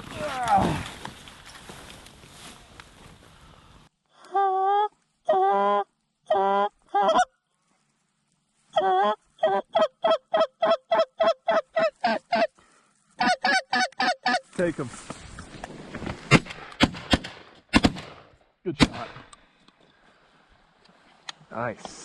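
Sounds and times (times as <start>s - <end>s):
duck call quacks: 8.8s - 12.5s, 13.2s - 14.4s.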